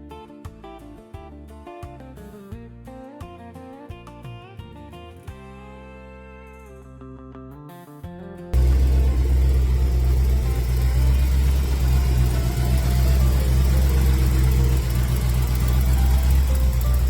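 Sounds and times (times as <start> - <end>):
car engine idling: 8.6 - 17.0.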